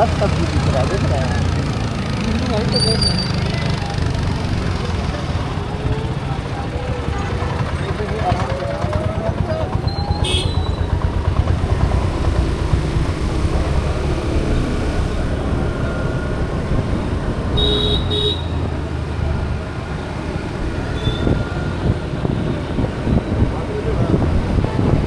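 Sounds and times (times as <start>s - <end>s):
road traffic rumble: 0.0s - 25.0s
vehicle horn tooting: 10.0s - 11.0s, 17.5s - 18.6s.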